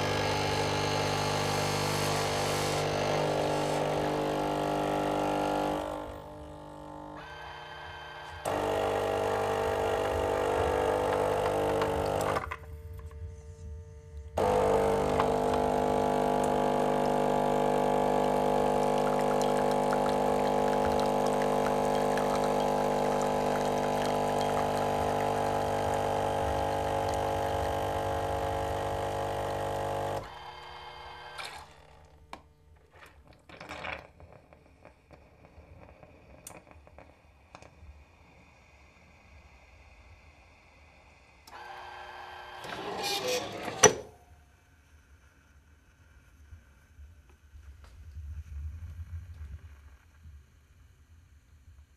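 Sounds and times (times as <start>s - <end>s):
coffee grinder motor hum: 0.0s - 13.1s, 14.4s - 32.2s, 41.5s - 44.0s.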